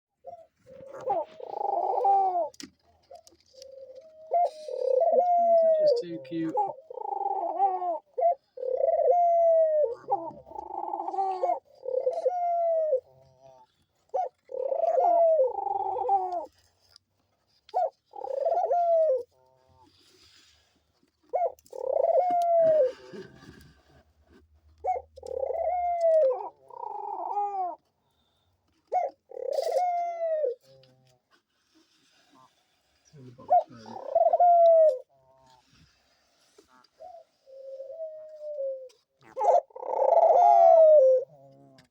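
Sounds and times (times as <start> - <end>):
doves cooing: 0.2 - 16.6, 17.5 - 20.1, 21.3 - 31.4, 32.4 - 35.8, 36.6 - 41.9.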